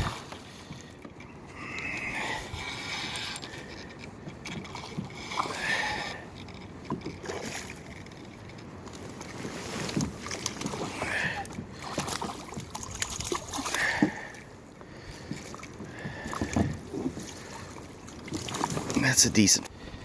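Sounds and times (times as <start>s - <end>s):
water splashing around kayak: 0.0s - 20.0s.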